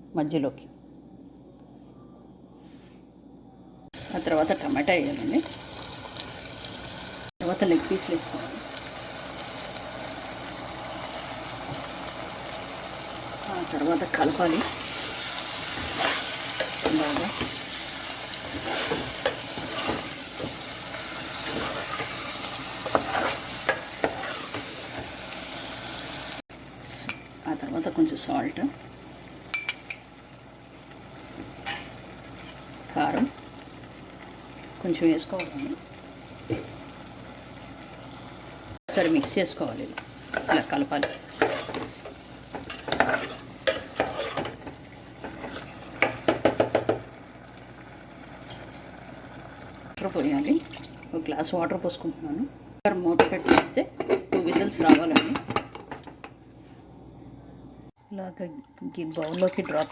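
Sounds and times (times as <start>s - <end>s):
chicken sizzling in hot oil: 4.0s - 26.8s
spoon scraping and knocking pan: 14.1s - 17.8s, 18.4s - 25.2s, 38.9s - 47.1s
spoon knocking against a pot: 46.0s - 47.0s.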